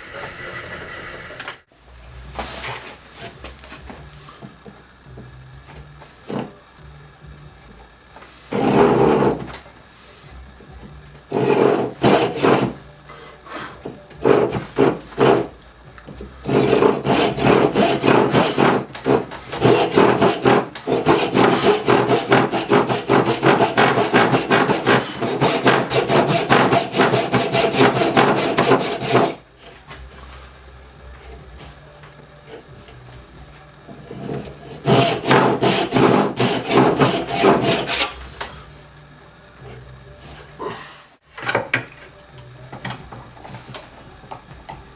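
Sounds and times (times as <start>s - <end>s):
hand tool rasping on wood: 8.5s - 9.5s, 11.3s - 12.8s, 13.5s - 15.6s, 16.4s - 29.9s, 34.0s - 38.2s.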